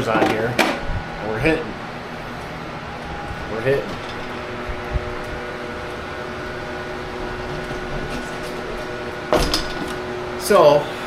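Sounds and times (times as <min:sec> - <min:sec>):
machine hum with held tones: 0:00.0 - 0:11.0.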